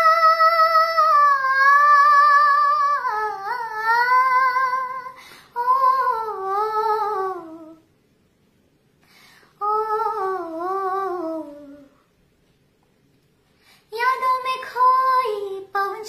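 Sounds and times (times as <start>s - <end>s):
high voice singing wordlessly: 0.0s - 7.9s, 9.6s - 12.1s, 13.9s - 16.0s.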